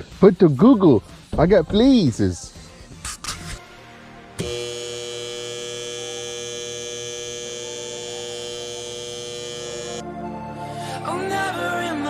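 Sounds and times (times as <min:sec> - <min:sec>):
electrical hum: 0:04.4 - 0:10.0.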